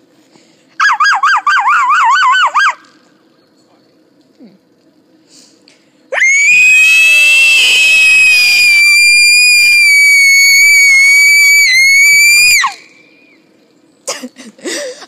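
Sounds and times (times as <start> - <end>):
woman screaming high: 6.2 - 12.8.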